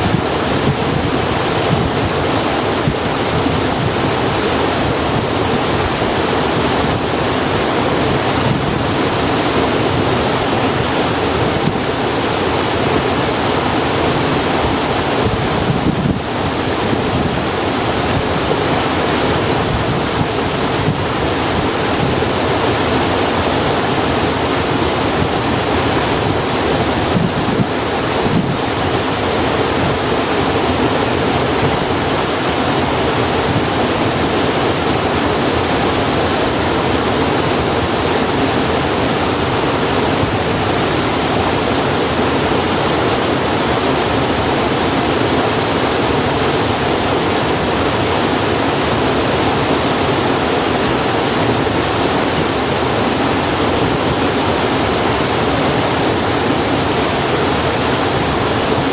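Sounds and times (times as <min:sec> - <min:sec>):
flowing water rushing: 0:00.0 - 0:58.9.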